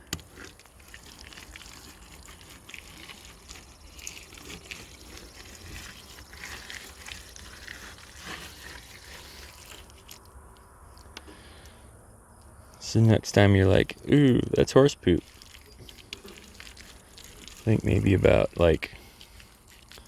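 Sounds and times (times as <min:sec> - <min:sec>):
plaster smearing on wooden boards: 0:00.1 - 0:10.2.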